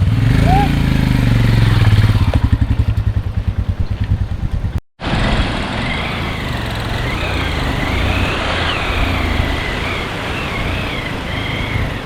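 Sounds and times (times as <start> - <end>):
motorcycle engine thumping: 0.0 - 4.8
steady rushing noise: 1.2 - 12.0.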